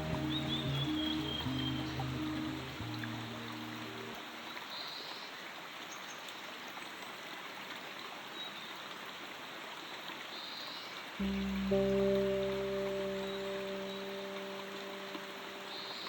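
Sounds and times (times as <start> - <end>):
low sustained music notes: 0.0 - 4.6, 11.2 - 16.0.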